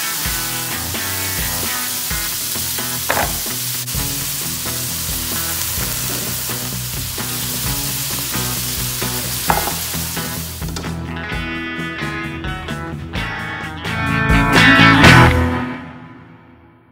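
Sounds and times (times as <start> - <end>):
fish and celery sizzling: 0.0 - 10.8
spatula scraping wok: 0.0 - 10.8
background music: 0.0 - 16.8.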